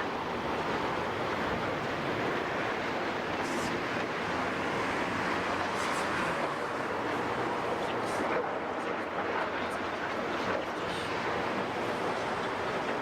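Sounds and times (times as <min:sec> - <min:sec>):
excavator rumble and hiss: 0:03.3 - 0:08.5.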